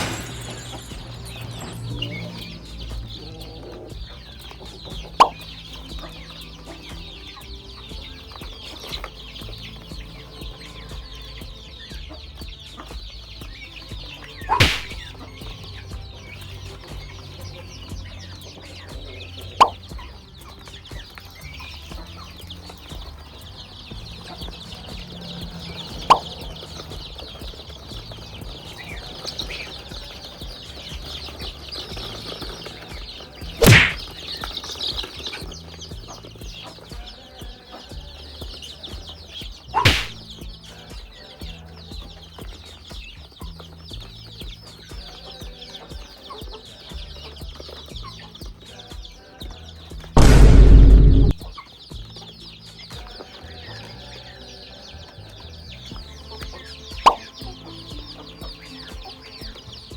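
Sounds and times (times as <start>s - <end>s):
chickens clucking: 0.0s - 59.9s
high-pitched background bird calls: 0.0s - 59.9s
loud short bursts: 50.2s - 51.3s.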